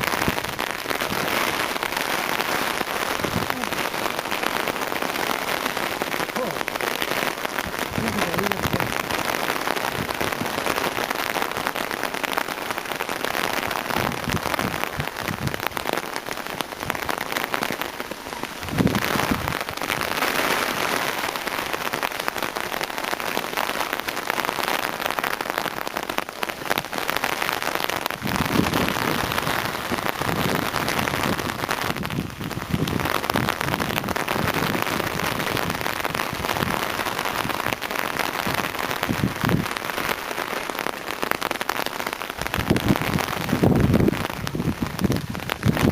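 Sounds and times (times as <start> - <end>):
heavy rain pelting down: 0.0 - 45.9.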